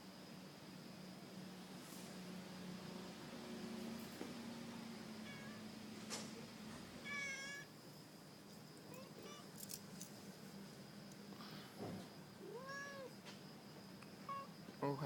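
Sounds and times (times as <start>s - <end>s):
cat meowing: 5.2s - 5.6s, 7.0s - 7.7s, 8.9s - 9.5s, 12.4s - 13.1s, 14.3s - 14.5s.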